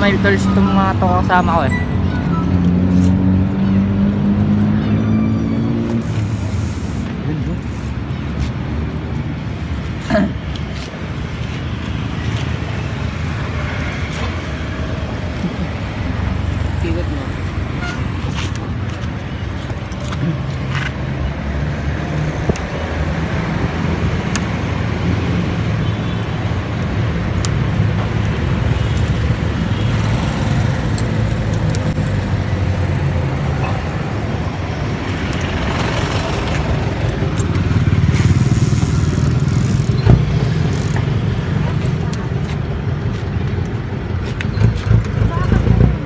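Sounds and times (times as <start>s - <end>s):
street noise: 0.0s - 46.0s
vehicle engines humming: 0.0s - 46.0s.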